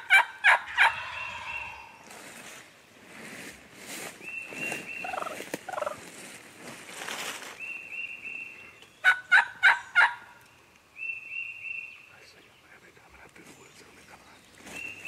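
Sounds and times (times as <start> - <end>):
wild turkeys calling: 0.0 - 2.2, 4.2 - 6.0, 8.0 - 12.2.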